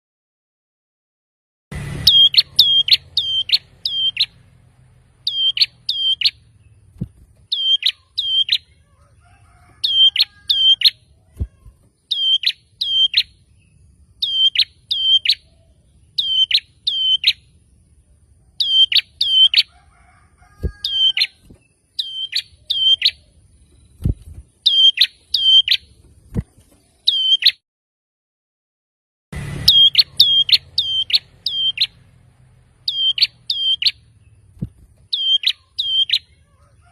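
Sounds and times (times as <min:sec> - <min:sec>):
bird singing high sharp notes: 0:01.9 - 0:04.4, 0:05.2 - 0:06.6, 0:07.5 - 0:08.8, 0:12.1 - 0:15.5, 0:16.1 - 0:17.5, 0:18.6 - 0:19.6, 0:22.0 - 0:25.9, 0:27.1 - 0:27.6, 0:29.6 - 0:32.0, 0:32.8 - 0:34.3, 0:35.1 - 0:36.4.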